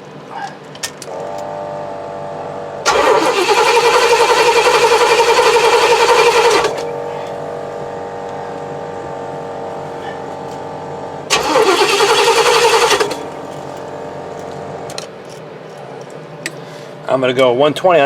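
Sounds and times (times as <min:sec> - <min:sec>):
engine cranking on starter: 0:02.9 - 0:07.3, 0:11.3 - 0:13.8.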